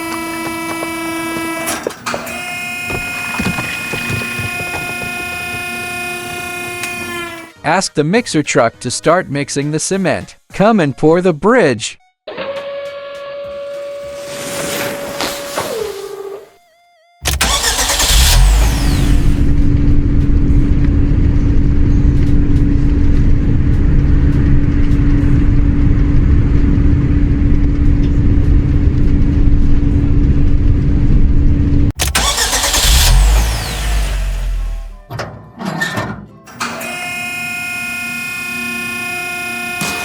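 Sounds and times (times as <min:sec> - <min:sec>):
truck engine rumbling: 0:00.0 - 0:07.5, 0:17.2 - 0:24.5, 0:31.5 - 0:35.1.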